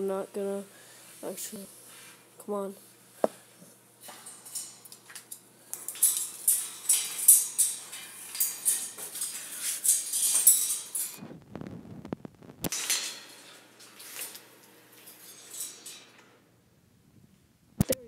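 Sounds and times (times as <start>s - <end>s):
wire bird cage rattling: 4.0s - 11.2s, 12.7s - 13.6s, 15.0s - 16.2s.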